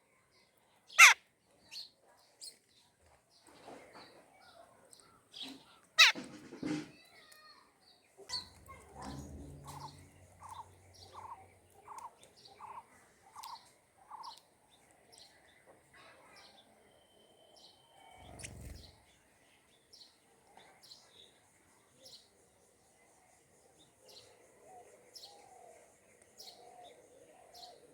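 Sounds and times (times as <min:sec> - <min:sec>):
faint low hum: 0:08.3 - 0:13.2.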